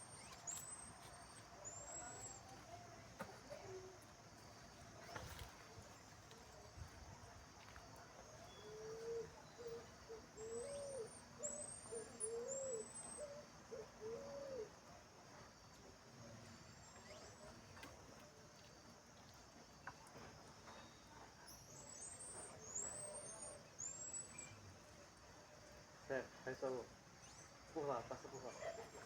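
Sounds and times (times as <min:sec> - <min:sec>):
low cooing bird hoots: 0:08.6 - 0:14.8.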